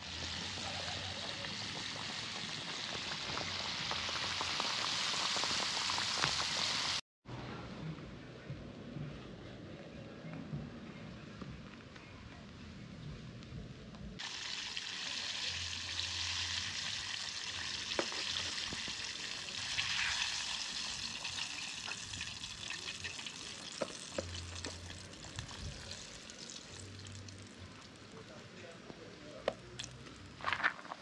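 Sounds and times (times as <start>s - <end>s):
chicken sizzling in hot oil: 0.0s - 7.0s, 14.2s - 28.1s.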